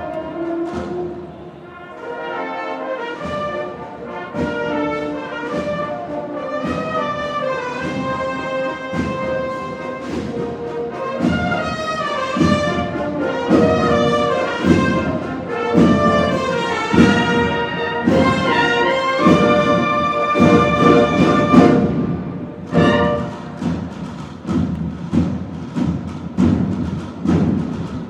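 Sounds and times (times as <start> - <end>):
brass cornets in harmony: 0.0 - 24.2
drum strokes: 0.1 - 2.2, 3.0 - 28.0.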